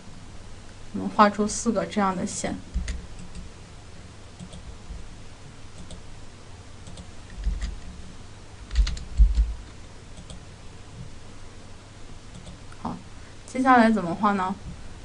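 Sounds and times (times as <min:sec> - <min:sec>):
computer keyboard clicks: 0:04.4 - 0:04.7, 0:05.8 - 0:06.0, 0:06.8 - 0:07.9, 0:08.7 - 0:09.5, 0:10.2 - 0:10.4, 0:12.3 - 0:12.6
dull low thumps: 0:08.8 - 0:09.6.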